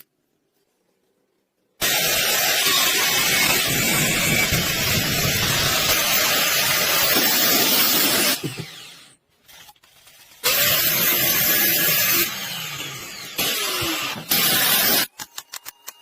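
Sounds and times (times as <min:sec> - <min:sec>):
power tool running: 0:01.8 - 0:09.2, 0:10.4 - 0:15.1.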